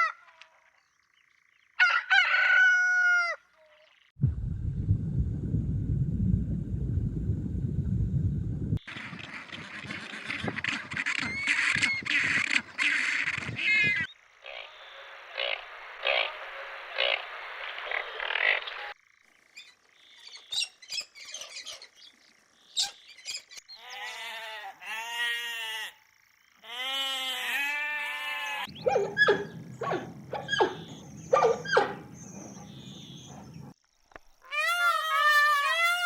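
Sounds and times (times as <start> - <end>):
low hum: 4.2 - 9.3
animal pitched calls: 26.6 - 33.7, 34.4 - 36.0.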